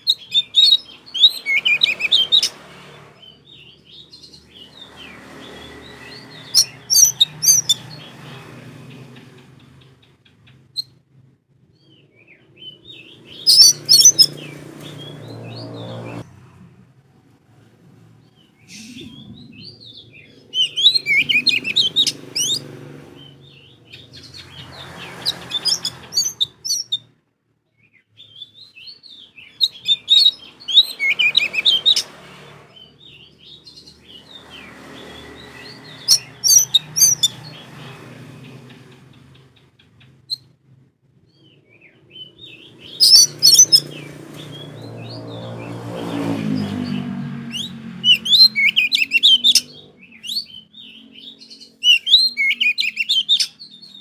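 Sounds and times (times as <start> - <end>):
bird chattering and whistling: 0.0 - 2.6, 3.2 - 8.3, 12.6 - 16.2, 18.6 - 27.1, 28.2 - 32.1, 32.8 - 37.8, 41.8 - 45.7, 46.5 - 54.0.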